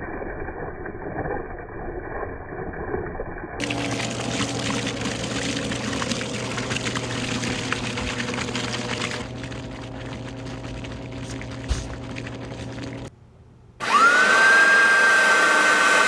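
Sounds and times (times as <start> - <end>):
vacuum cleaner running: 13.8 - 16.0.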